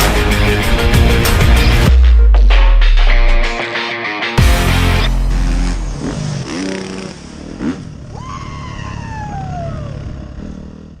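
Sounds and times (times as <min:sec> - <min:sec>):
motorcycle passing whine: 0:04.5 - 0:11.0
motocross engines revving: 0:04.6 - 0:11.0.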